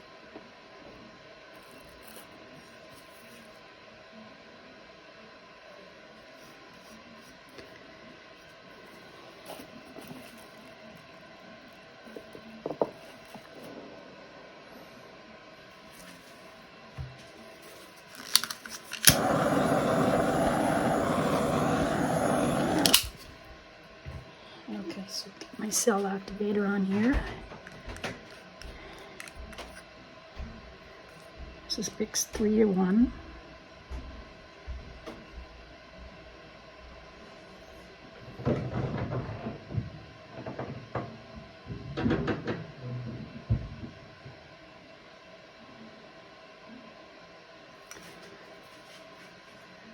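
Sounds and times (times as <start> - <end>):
torch flame hissing: 17.6 - 23.6
torch igniter clicks: 18.1 - 23.4.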